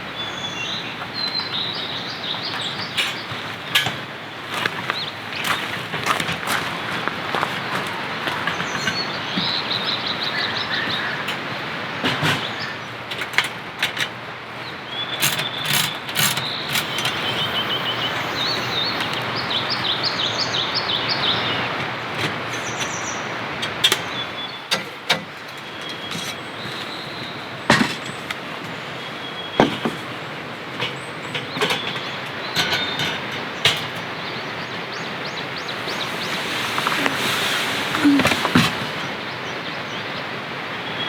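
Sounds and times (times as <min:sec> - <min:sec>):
bird trilling: 0:16.2 - 0:20.9, 0:35.4 - 0:39.3.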